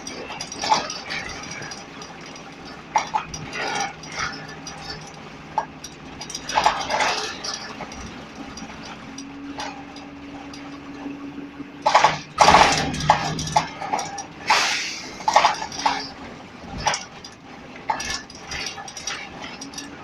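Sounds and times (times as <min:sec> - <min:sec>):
bus engine hum: 0:00.0 - 0:20.0
steady whine: 0:00.0 - 0:20.0
loud noisy burst: 0:14.5 - 0:15.2.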